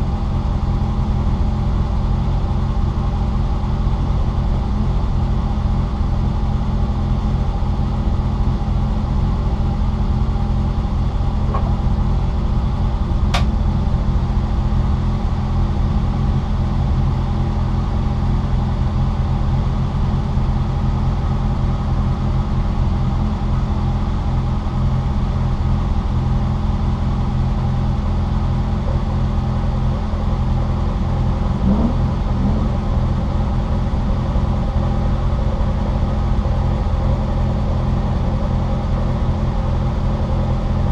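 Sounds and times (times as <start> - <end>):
car engine from inside cabin: 0.0 - 40.9
sharp click: 13.3 - 13.5.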